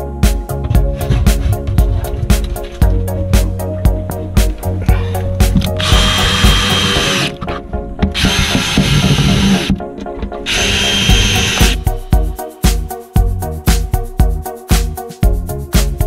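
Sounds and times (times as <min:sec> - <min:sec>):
background music with beat: 0:00.0 - 0:16.0
electric power tool whining: 0:05.6 - 0:09.8, 0:10.4 - 0:11.8.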